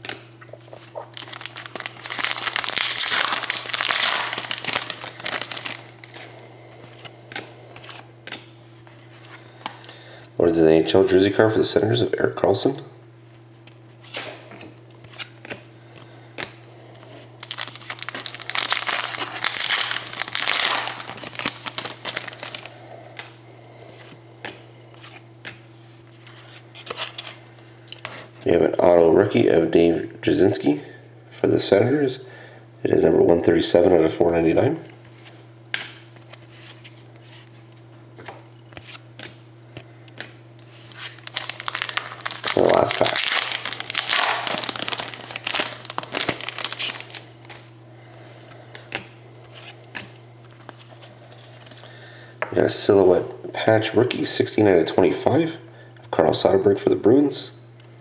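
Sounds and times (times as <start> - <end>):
cards being shuffled: 0.0 - 9.8, 17.4 - 23.3, 35.0 - 39.4, 40.1 - 47.7, 48.7 - 51.8
steady low hum: 0.0 - 58.0
wrapper crinkling: 0.7 - 6.2, 17.4 - 23.3, 40.6 - 47.7.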